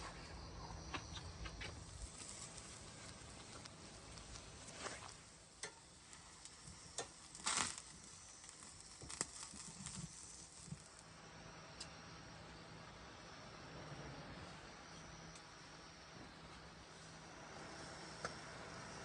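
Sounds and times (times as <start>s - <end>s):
faint clicks and crackles: 0.1s - 11.1s
food sizzling on a grill: 1.1s - 11.2s.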